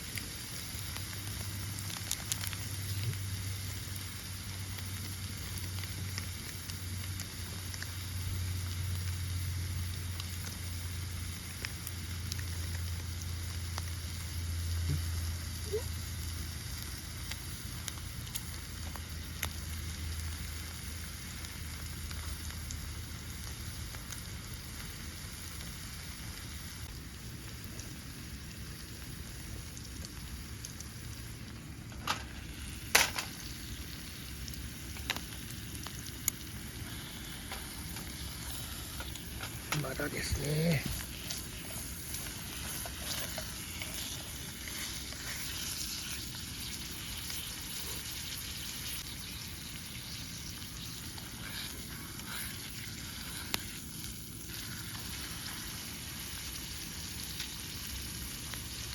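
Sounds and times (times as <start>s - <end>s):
fire crackling: 0.0s - 58.9s
steak sizzling over fire: 0.0s - 58.9s.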